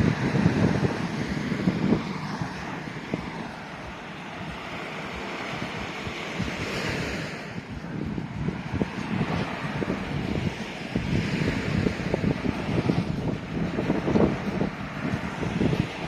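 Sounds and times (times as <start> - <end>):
surf washing onto beach: 0.0 - 16.0
wind buffeting microphone: 0.0 - 16.0.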